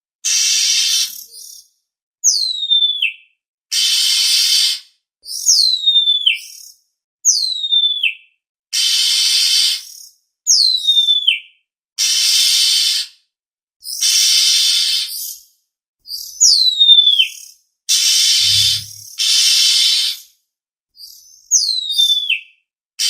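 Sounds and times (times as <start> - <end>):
bird whistles sliding down: 18.2 - 19.1
harsh rasping bird calls: 18.3 - 19.0.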